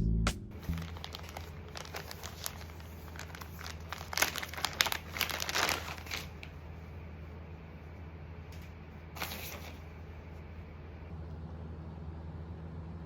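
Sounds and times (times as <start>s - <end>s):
steady low hum: 0.0s - 3.5s, 9.8s - 13.0s
crinkling and rustling: 0.6s - 6.7s, 8.6s - 9.9s.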